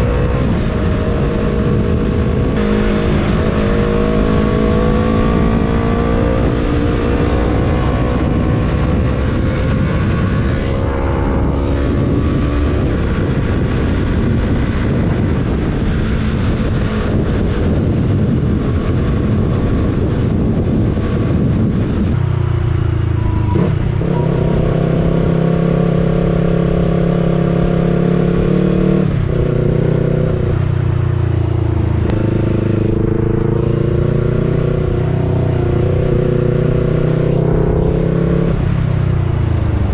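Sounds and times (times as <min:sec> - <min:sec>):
motorcycle engine running: 0:00.0 - 0:24.4
wind noise: 0:00.0 - 0:39.9.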